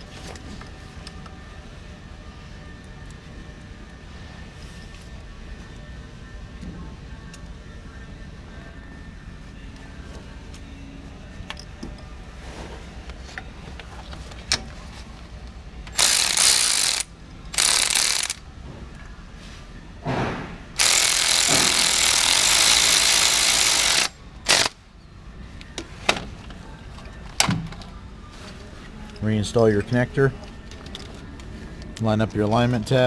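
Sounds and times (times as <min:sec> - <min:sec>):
ratchet wrench running: 0:15.9 - 0:18.5, 0:20.8 - 0:24.8.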